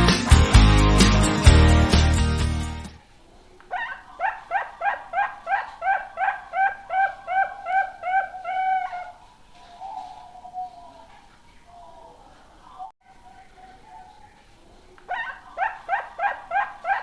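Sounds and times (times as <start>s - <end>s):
guitar music: 0.0s - 3.0s
dove calling: 3.4s - 17.0s.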